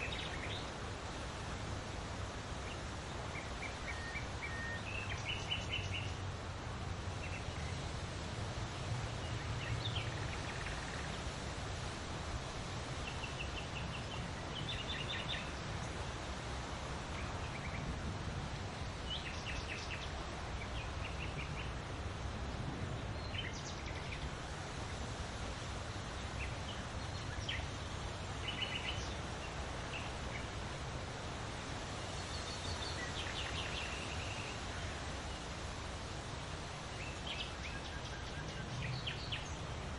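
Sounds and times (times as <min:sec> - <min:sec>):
bird calls and trills: 0:00.0 - 0:00.8, 0:02.6 - 0:06.3, 0:07.1 - 0:08.0, 0:09.0 - 0:11.6, 0:12.9 - 0:16.3, 0:17.0 - 0:18.0, 0:18.8 - 0:25.0, 0:26.0 - 0:30.6, 0:31.9 - 0:35.8, 0:36.8 - 0:39.9
outdoor background hiss: 0:00.0 - 0:39.9.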